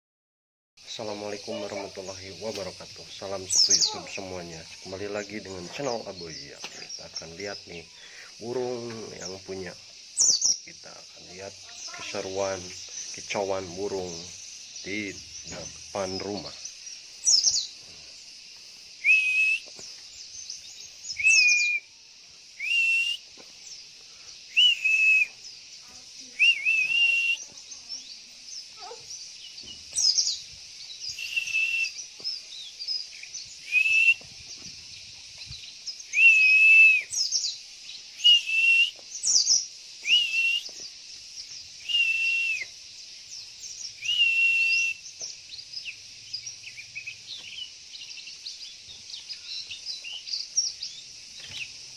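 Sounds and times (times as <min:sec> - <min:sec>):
bird whistled calls: 0:03.3 - 0:04.4, 0:19.0 - 0:22.0, 0:22.6 - 0:23.4, 0:24.5 - 0:25.6, 0:26.2 - 0:27.9, 0:31.0 - 0:34.7, 0:35.6 - 0:40.9, 0:41.8 - 0:42.8, 0:43.7 - 0:45.4.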